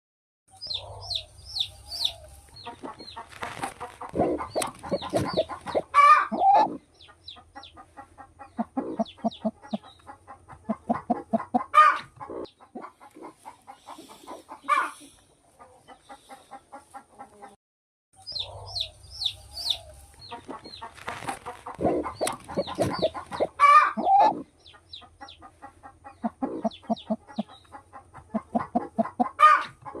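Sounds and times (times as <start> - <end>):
chickens clucking: 0.5 - 17.6, 18.2 - 30.0.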